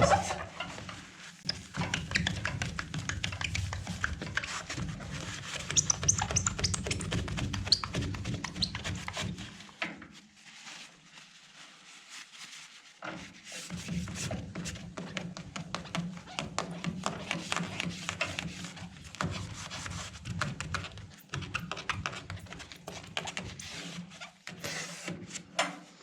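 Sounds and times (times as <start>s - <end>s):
paper towel wiping glass: 0.0s - 1.5s.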